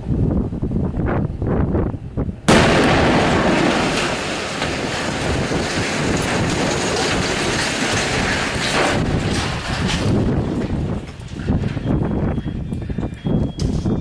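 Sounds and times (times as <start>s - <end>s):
bomb explosion: 2.5s - 11.8s.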